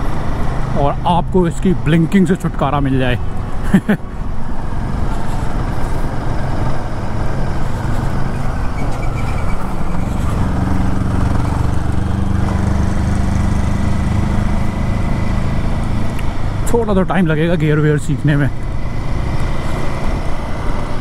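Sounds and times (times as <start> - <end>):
road and wind noise: 0.0 - 21.0
motorcycle engine running: 5.0 - 17.5.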